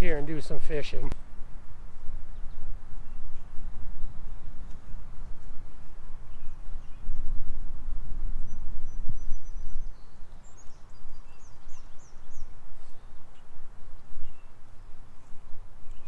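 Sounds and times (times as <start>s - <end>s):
low rumble on microphone: 0.0s - 16.0s
small birds chirping: 5.8s - 7.2s, 8.5s - 16.0s.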